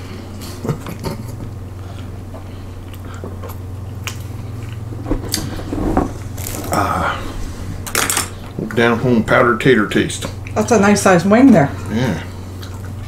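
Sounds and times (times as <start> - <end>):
steady low hum: 0.0 - 13.0
people chewing and biting: 0.3 - 5.5, 11.8 - 13.0.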